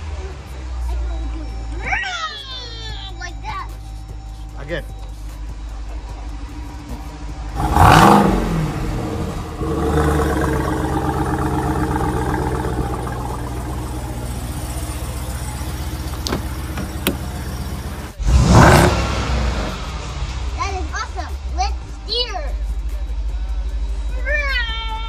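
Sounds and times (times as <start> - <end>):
car engine revving and idling: 4.0 - 24.2.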